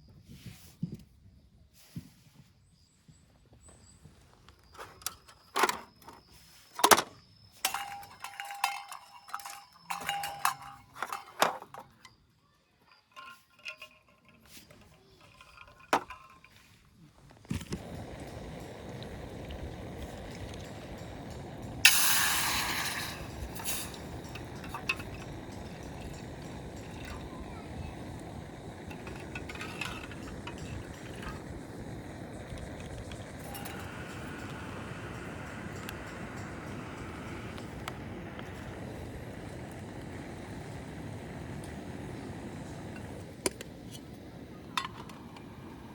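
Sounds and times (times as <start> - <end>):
metal cookware clinking: 7.6 - 11.9, 12.9 - 16.7, 17.8 - 44.0, 44.6 - 45.5
steady hiss: 17.5 - 45.9.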